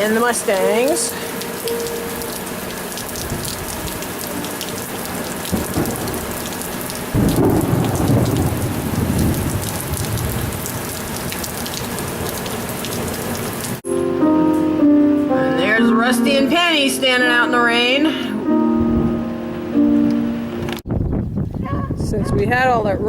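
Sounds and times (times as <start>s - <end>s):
heavy rain falling: 0.0s - 13.8s
thunder rumbling: 1.9s - 13.8s, 20.7s - 23.0s.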